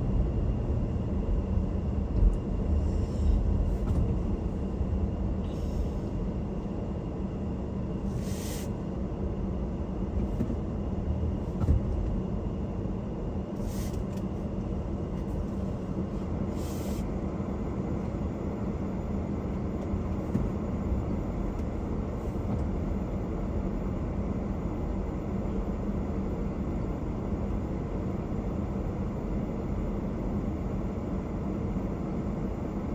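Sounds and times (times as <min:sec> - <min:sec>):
car road rumble and tyre noise: 0:00.0 - 0:32.9
car bump: 0:03.8 - 0:04.2, 0:10.1 - 0:10.8, 0:11.4 - 0:12.3.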